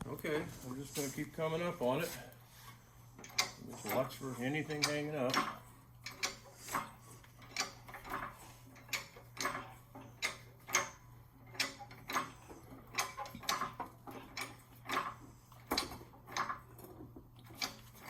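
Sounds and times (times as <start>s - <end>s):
engine hoist ratcheting clicks: 3.2s - 18.0s.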